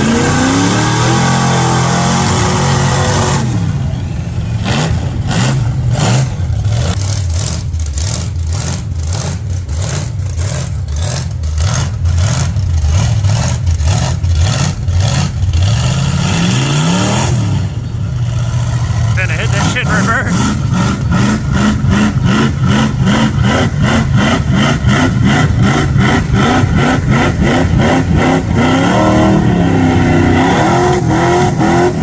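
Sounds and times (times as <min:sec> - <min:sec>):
truck engine revving: 0:00.0 - 0:32.0.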